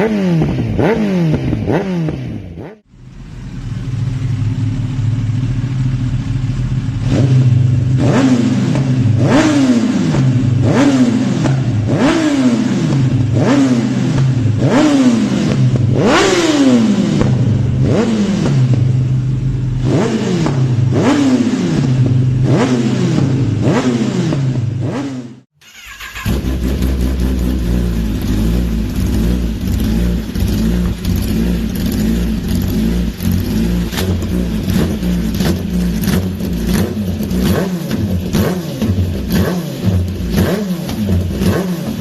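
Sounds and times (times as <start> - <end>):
motorcycle engine idling and revving: 0.0 - 42.0.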